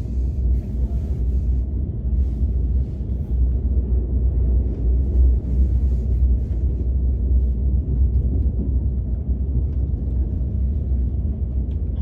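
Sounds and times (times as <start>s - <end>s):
train cabin rumble: 0.0s - 12.0s.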